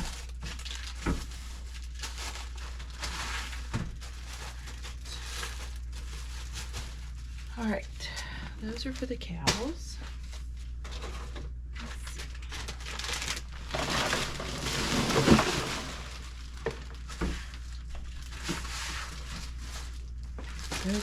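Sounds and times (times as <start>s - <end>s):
plastic packaging crinkling: 0.0s - 7.7s, 10.2s - 21.0s.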